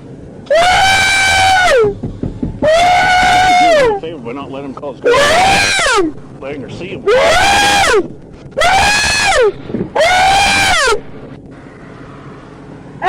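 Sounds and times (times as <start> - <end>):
man wailing and crying: 2.6 - 4.0.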